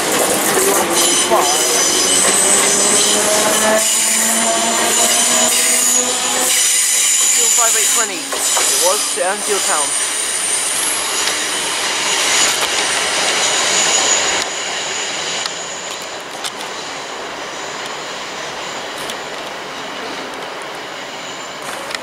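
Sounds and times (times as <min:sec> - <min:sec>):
train rail noise: 0:00.0 - 0:22.0
wheels squealing on curve: 0:00.4 - 0:09.2.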